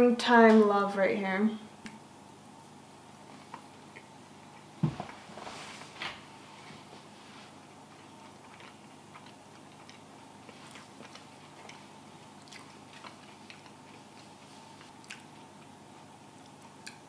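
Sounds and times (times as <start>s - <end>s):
low room hum: 0.0s - 17.0s
soft chewing with wet mouth clicks: 8.0s - 15.7s, 16.4s - 17.0s.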